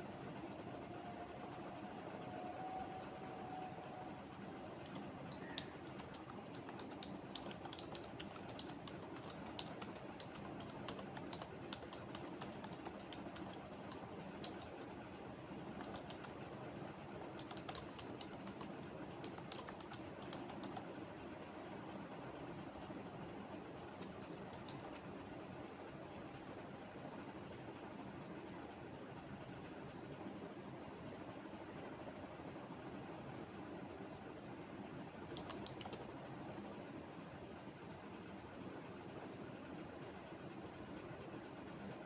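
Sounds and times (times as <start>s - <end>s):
low background noise: 0.0s - 42.0s
keyboard key clicks: 23.9s - 25.1s, 35.3s - 36.1s.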